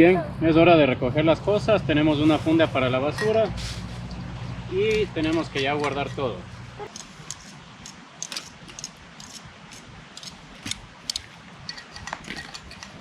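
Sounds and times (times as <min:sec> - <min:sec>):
clicks and clinks of gear being packed: 0:06.9 - 0:09.4, 0:10.2 - 0:13.0.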